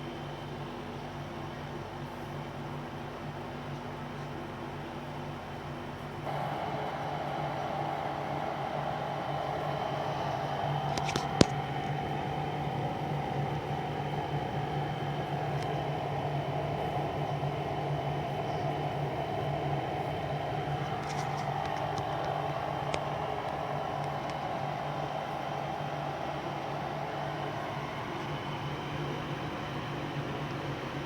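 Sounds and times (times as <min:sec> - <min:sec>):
dehumidifier hum and fan: 0:00.0 - 0:31.0.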